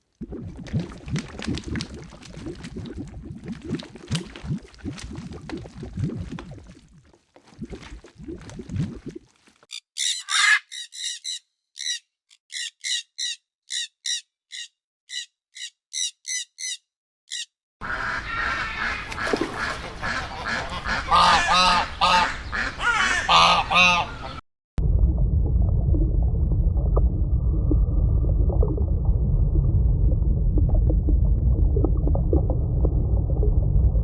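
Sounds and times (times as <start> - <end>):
short high-pitched chirping calls: 9.7 - 17.6
waterfowl honking and calling: 9.7 - 24.4.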